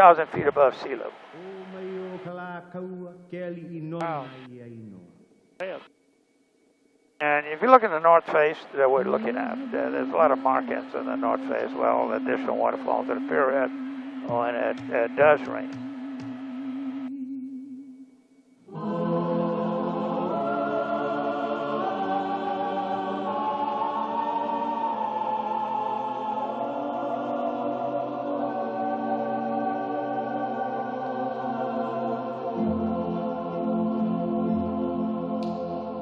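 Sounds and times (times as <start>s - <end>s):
slow music of held chords: 8.4s - 36.0s.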